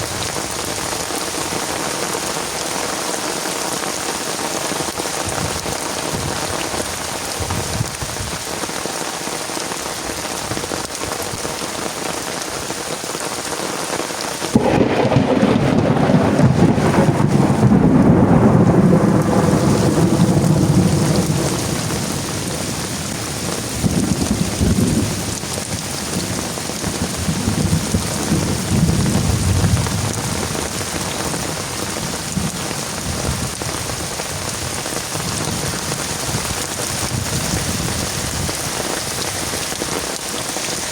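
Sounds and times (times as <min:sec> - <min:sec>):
heavy rain: 0:00.0 - 0:40.9
thunder rumbling: 0:14.5 - 0:39.8.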